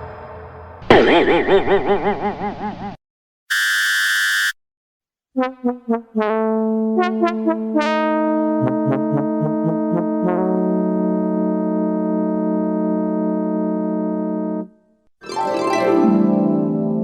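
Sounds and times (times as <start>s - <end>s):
steady buzzer: 3.5s - 4.6s
held synthesizer chord: 5.4s - 14.8s.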